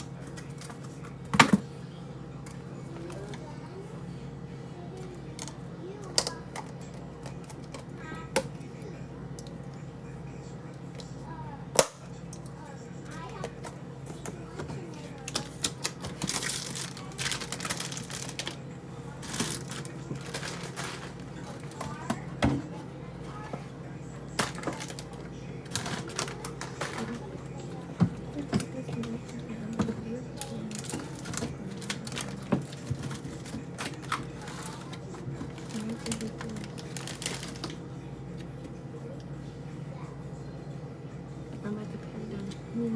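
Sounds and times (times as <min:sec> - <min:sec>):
faint voices: 0:00.0 - 0:42.9
steady low hum: 0:00.0 - 0:42.9
plastic packaging crinkling: 0:15.2 - 0:18.6, 0:19.2 - 0:22.1, 0:24.4 - 0:27.3, 0:30.4 - 0:37.8
household items clicking and knocking: 0:28.0 - 0:37.8.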